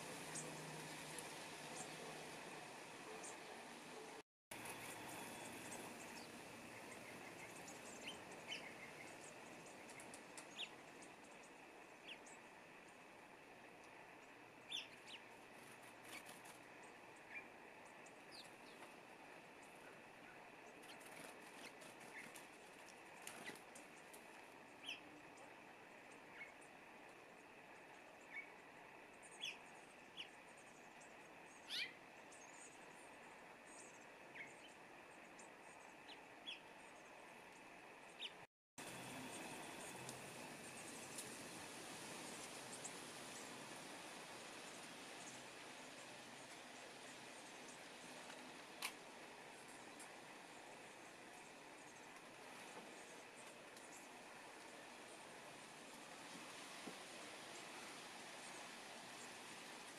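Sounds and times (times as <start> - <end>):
small songbirds chirping: 0.0 - 3.7, 5.2 - 38.5, 49.4 - 55.4.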